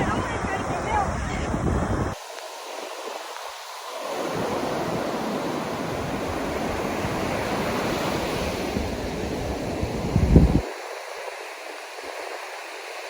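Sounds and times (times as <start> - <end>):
wind buffeting microphone: 0.0 - 2.2, 4.2 - 10.8
ocean surf on a beach: 0.0 - 13.0.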